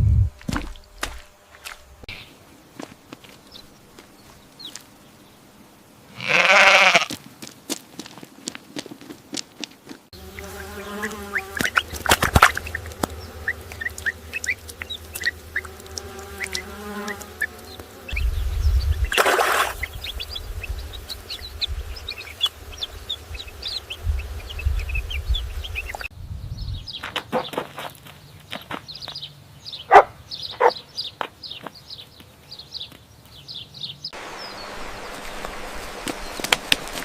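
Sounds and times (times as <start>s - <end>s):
small birds chirping: 0.5s - 5.9s, 9.8s - 37.0s
bees buzzing: 10.1s - 26.1s, 34.2s - 37.0s.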